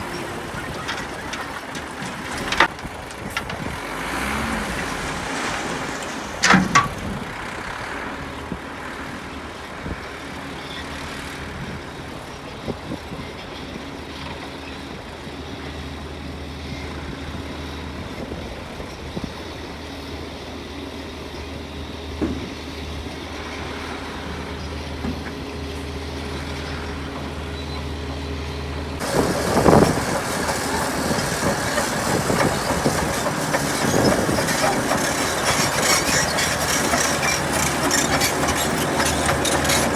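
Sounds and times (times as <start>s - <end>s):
clattering and scraping: 0.0s - 9.3s, 29.0s - 39.9s
diesel earthmoving machinery running: 0.0s - 39.9s.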